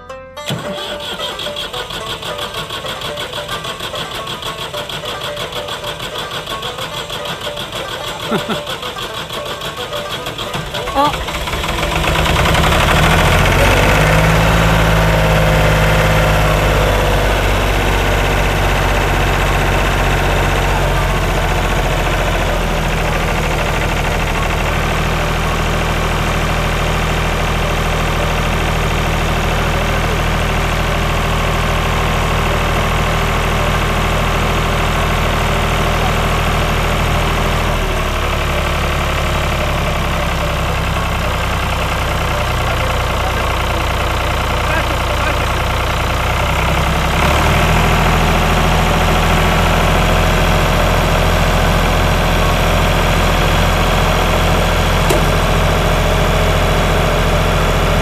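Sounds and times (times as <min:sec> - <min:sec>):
tractor engine starting and idling: 0:00.0 - 0:58.0.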